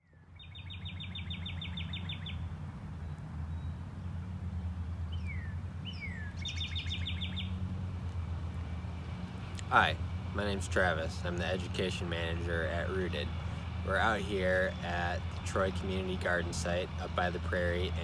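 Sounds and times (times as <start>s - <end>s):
songbird trills and whistles: 0.4s - 2.4s, 5.1s - 7.5s
steady low rumble: 2.5s - 18.0s.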